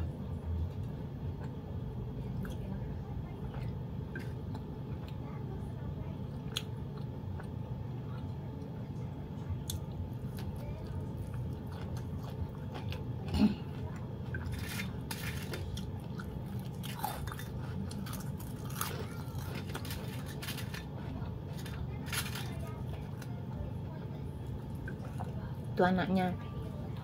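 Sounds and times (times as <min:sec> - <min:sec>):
steady low hum: 0:00.0 - 0:27.0
person chewing food: 0:00.6 - 0:01.6, 0:06.3 - 0:08.4, 0:09.6 - 0:25.7
crisp crunches: 0:14.3 - 0:23.3.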